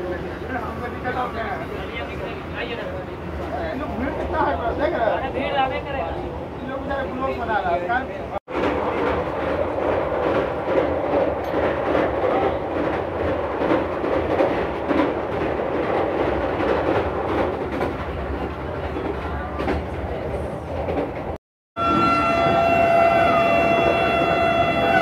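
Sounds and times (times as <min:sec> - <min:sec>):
electric train running at speed: 0:21.8 - 0:25.0
horn-like tone: 0:21.8 - 0:25.0.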